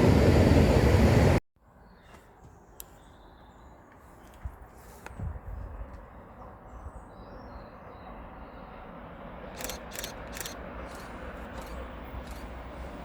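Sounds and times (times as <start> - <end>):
train rumbling: 0.0 - 1.4, 9.4 - 13.0
sharp clicks: 9.6 - 12.5.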